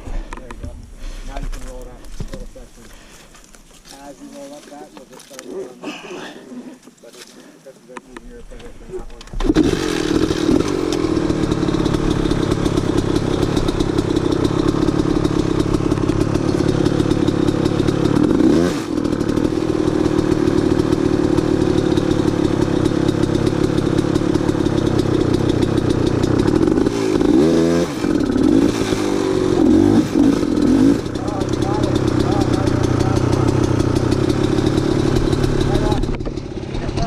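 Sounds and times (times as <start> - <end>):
dirt bike engine revving: 9.3 - 37.0.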